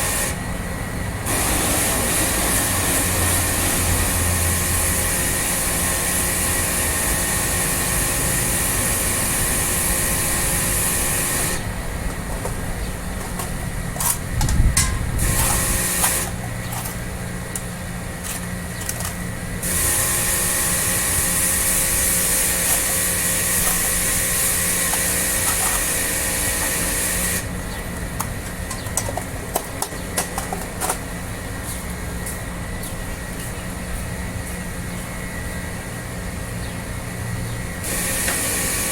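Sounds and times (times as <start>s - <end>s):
high-pressure water spray hissing: 0.0s - 0.5s, 1.3s - 11.8s, 15.2s - 16.4s, 19.6s - 27.5s, 37.8s - 38.9s
motor hum: 0.0s - 31.6s.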